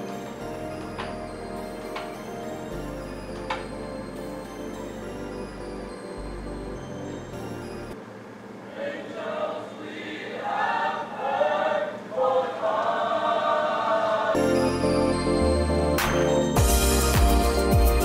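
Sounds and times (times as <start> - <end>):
choir singing: 8.7 - 18.0
bass and band playing: 16.6 - 18.0.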